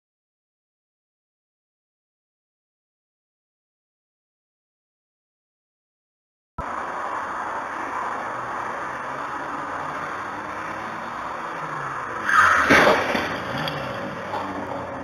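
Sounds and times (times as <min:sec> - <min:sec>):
car road noise: 0:06.6 - 0:15.0.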